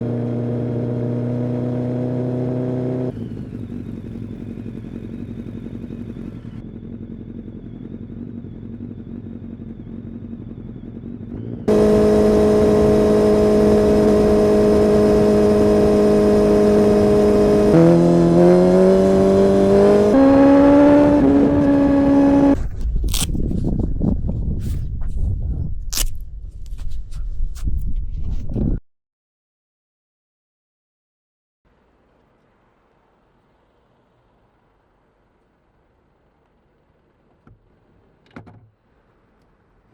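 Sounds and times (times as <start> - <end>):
motorcycle engine revving: 0.0 - 22.6.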